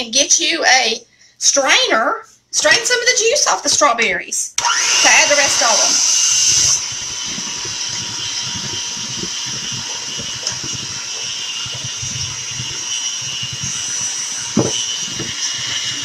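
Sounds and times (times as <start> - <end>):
electric mixer whining: 4.6 - 16.0
sharp knock: 14.6 - 15.4.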